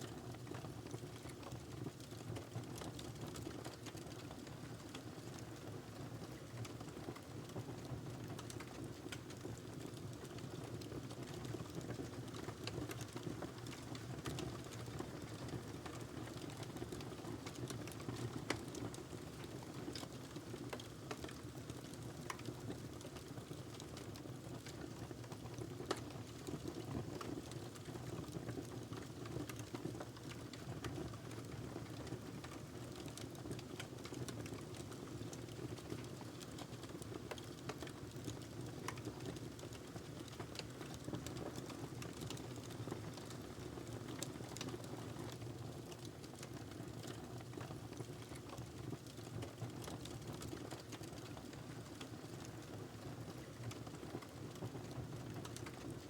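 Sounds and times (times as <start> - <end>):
fire crackling and popping: 35.5 - 44.7, 53.3 - 55.9.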